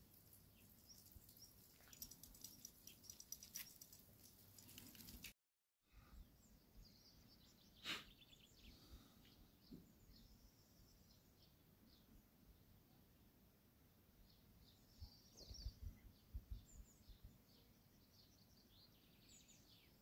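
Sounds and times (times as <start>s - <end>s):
faint bird chirps: 14.2s - 20.0s.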